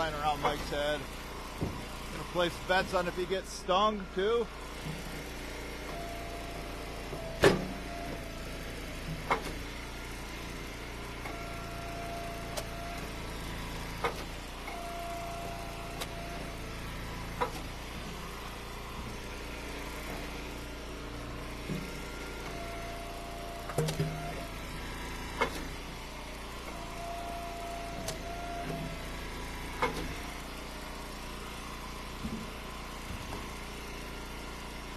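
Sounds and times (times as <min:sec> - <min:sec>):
wood splitter engine running: 0:00.0 - 0:34.9
wood splitting knocks: 0:01.6 - 0:01.9.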